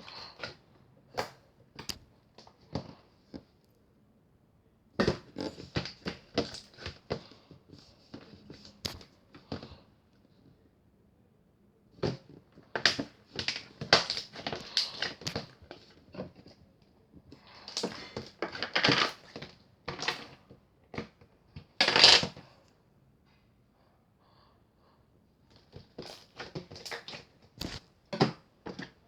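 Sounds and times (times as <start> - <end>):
crinkling and rustling: 5.0 - 9.8, 12.0 - 22.6, 25.5 - 29.0.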